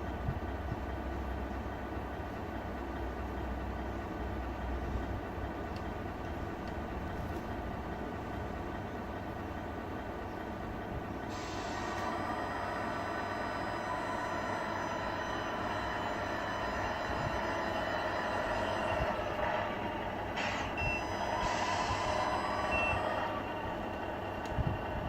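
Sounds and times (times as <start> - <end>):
simulated truck diesel engine: 0.0 - 25.0
short hisses of air: 11.3 - 12.0.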